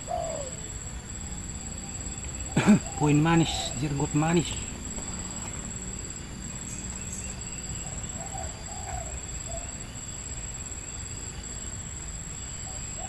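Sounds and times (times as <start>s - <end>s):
dove cooing: 0.0s - 6.9s, 7.6s - 9.9s
high insect drone: 0.0s - 13.0s.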